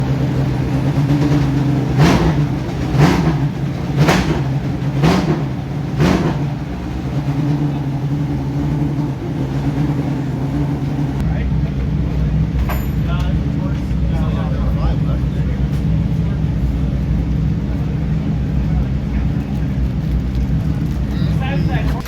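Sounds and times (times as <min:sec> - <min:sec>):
race car engine revving: 0:00.0 - 0:12.6.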